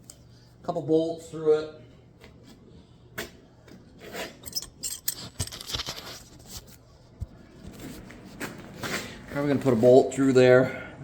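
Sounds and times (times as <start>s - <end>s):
scraping and rustling: 4.0s - 10.0s.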